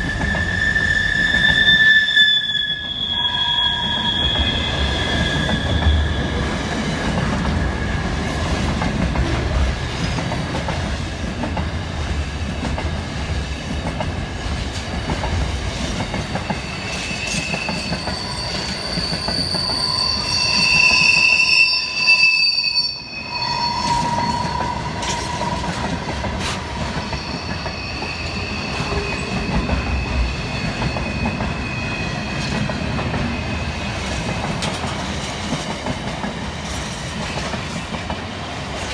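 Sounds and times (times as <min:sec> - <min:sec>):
high wheel squeal: 0:00.0 - 0:06.8, 0:16.4 - 0:34.0
train wheels rumbling on rail: 0:00.0 - 0:22.2, 0:23.0 - 0:38.9.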